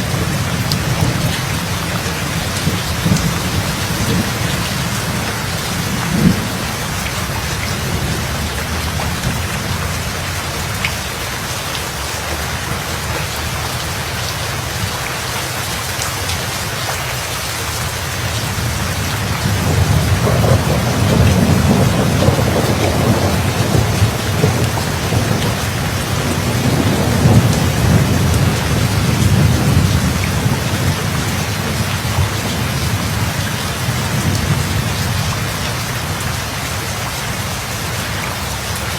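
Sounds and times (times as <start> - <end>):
rolling thunder rumble: 0.0 - 10.9, 18.3 - 36.5
rain falling: 0.0 - 38.9
sharp thunder crack: 19.6 - 30.9.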